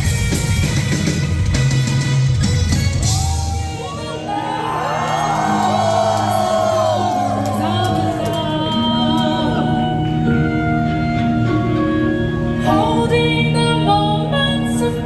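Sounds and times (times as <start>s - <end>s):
held keyboard chords: 0.0s - 15.0s
person singing: 5.6s - 10.5s, 12.6s - 15.0s.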